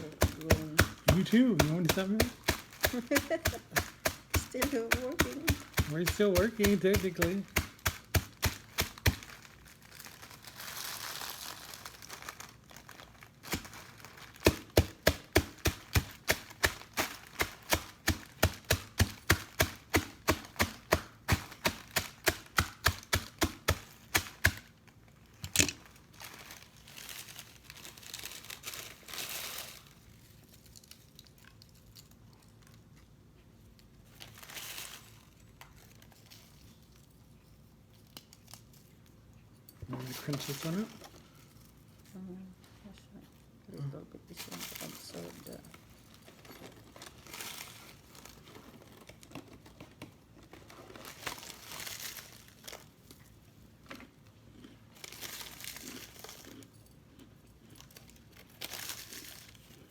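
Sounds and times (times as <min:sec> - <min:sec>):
wrapper crinkling: 0:00.0 - 0:33.0, 0:33.7 - 0:37.1, 0:40.0 - 0:42.2, 0:44.4 - 0:49.6, 0:50.3 - 0:53.4, 0:54.9 - 0:56.7, 0:57.6 - 0:59.9
rapid knocking on a board: 0:00.2 - 0:09.2.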